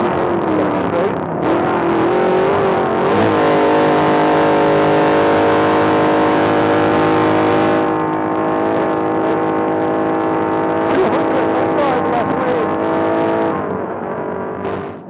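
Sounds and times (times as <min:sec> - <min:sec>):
truck engine running hard: 0:00.0 - 0:15.0
wind and road noise: 0:00.0 - 0:15.0.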